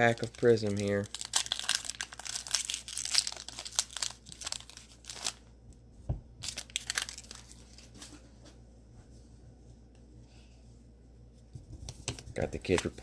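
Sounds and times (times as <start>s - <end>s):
cellophane wrapper crinkling: 0.0s - 5.5s, 6.4s - 8.0s.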